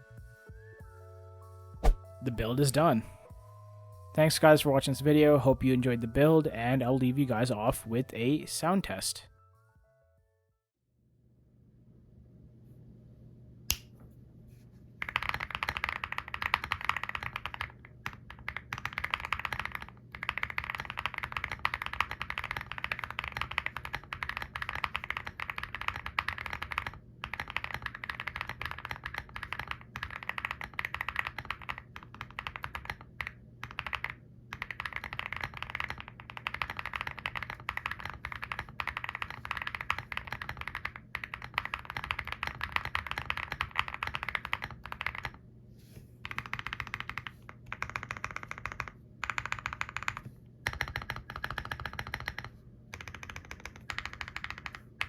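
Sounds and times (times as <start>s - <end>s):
sharp click: 1.8s - 2.0s
mechanical keyboard typing: 15.0s - 45.4s, 46.2s - 55.0s.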